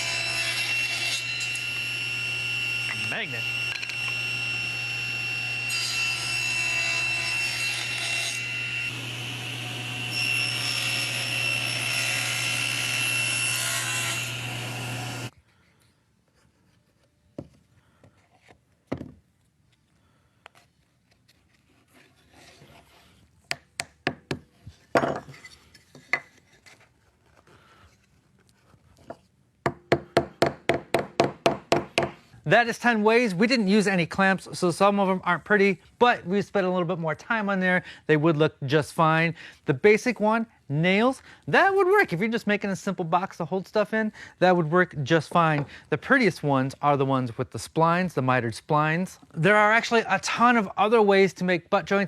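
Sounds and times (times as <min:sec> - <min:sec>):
power tool cutting wood: 0:00.0 - 0:15.3
wood pieces knocking: 0:23.5 - 0:25.3.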